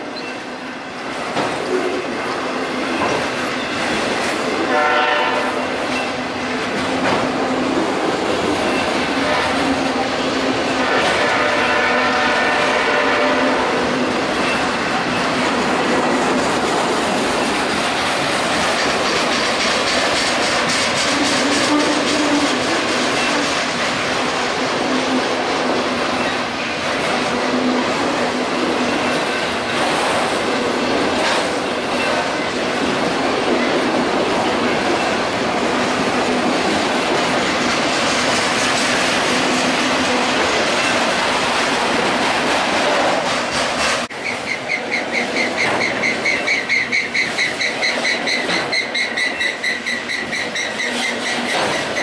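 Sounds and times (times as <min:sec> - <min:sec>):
freight train wheels on rails: 0:00.0 - 0:52.0
railroad crossing bell ringing: 0:14.3 - 0:15.4.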